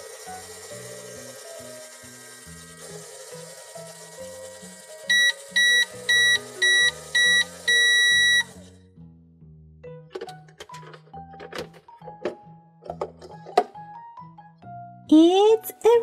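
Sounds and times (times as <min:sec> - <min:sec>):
background music: 0:00.0 - 0:16.0
electronic timer beeping: 0:05.1 - 0:08.6.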